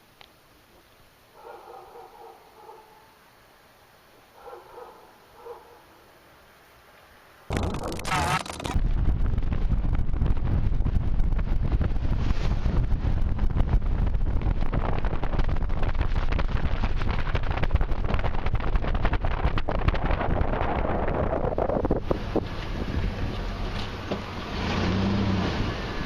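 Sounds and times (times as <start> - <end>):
strong wind buffeting microphone: 8.7 - 23.7.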